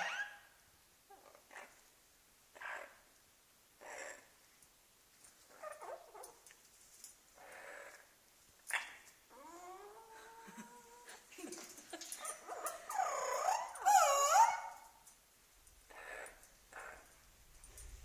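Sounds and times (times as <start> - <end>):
parrots squawking: 0.0 - 0.5, 12.3 - 14.9, 15.9 - 17.1.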